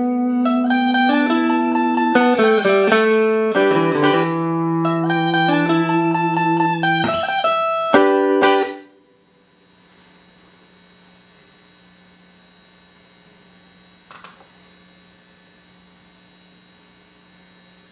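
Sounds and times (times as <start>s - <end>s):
clean electric guitar chords: 0.0s - 9.3s
amplifier mains hum: 0.0s - 17.9s.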